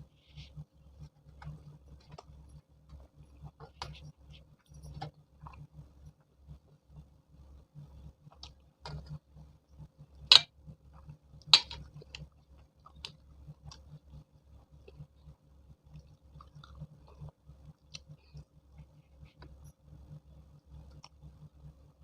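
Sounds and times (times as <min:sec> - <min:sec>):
close chewing with mouth smacks: 0:01.0 - 0:05.8, 0:11.8 - 0:19.7, 0:20.6 - 0:21.4.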